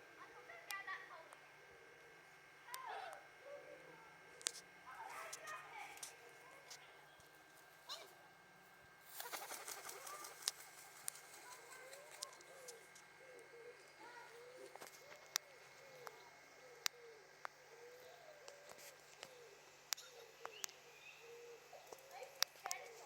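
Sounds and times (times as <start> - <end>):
bird cooing: 0.0 - 7.2, 9.1 - 23.0
sharp clicks: 9.2 - 13.5, 18.4 - 20.8.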